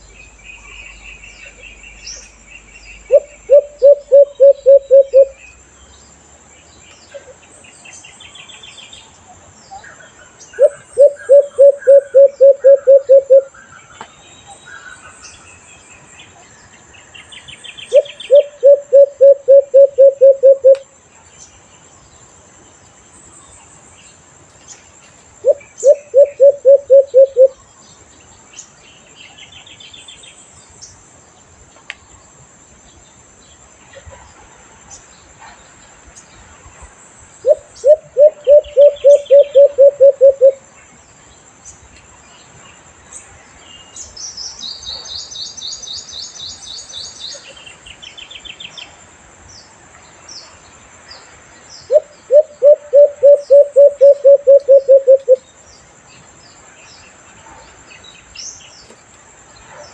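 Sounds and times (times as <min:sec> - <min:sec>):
faint bird chirps: 0:00.0 - 0:06.0, 0:06.9 - 0:21.7, 0:24.7 - 0:28.0, 0:33.8 - 0:41.0, 0:50.3 - 0:59.0
high insect whine: 0:00.0 - 0:33.9, 0:35.0 - 0:59.6
dove cooing: 0:03.1 - 0:05.4, 0:10.6 - 0:13.5, 0:17.9 - 0:20.8, 0:25.4 - 0:27.6, 0:37.4 - 0:40.6, 0:51.9 - 0:55.4.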